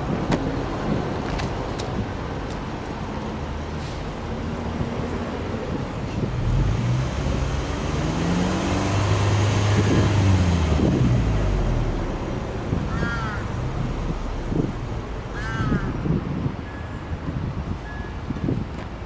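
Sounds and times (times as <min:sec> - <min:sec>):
car engine revving: 0:06.4 - 0:16.0
crow cawing: 0:12.9 - 0:13.5, 0:15.3 - 0:16.0.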